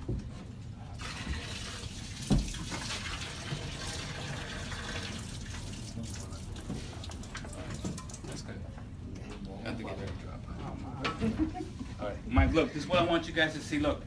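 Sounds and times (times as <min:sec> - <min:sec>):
water pouring and splashing: 0:01.0 - 0:08.4.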